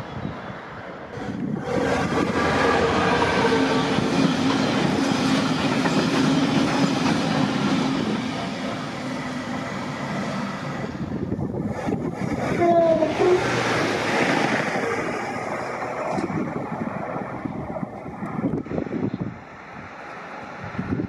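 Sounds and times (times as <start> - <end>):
diesel locomotive engine humming: 0.0 - 21.0
wagons rolling on rails: 11.6 - 18.7.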